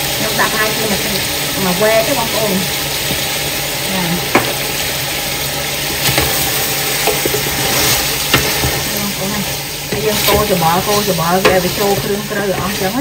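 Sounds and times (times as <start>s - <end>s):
food sizzling in a pot: 0.0s - 13.0s
spatula knocking against pot: 4.3s - 4.6s, 8.3s - 8.8s, 11.3s - 12.8s.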